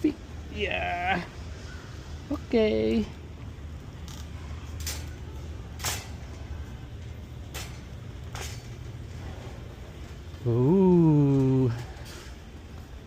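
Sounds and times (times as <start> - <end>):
shopping cart rumbling: 3.6 - 13.0
shopping cart clunks: 5.8 - 6.4, 7.4 - 9.6.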